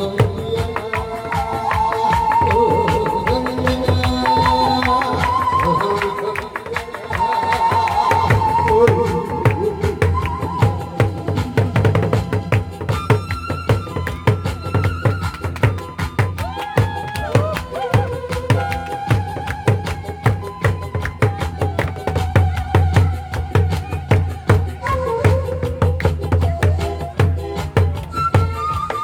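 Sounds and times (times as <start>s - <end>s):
backing track melody: 0.0s - 29.0s
rapid drumming with sticks: 0.0s - 29.0s.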